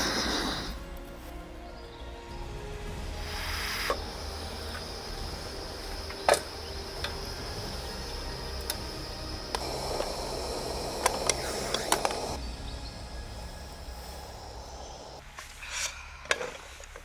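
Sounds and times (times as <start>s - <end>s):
gas stove burner hissing: 0.0s - 0.8s, 3.2s - 15.2s.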